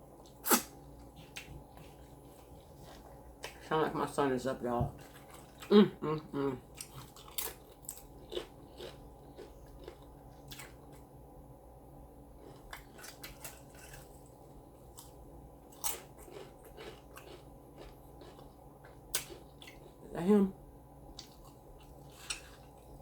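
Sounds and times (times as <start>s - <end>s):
chewing taco: 5.0s - 11.2s, 12.2s - 20.0s, 21.1s - 23.0s.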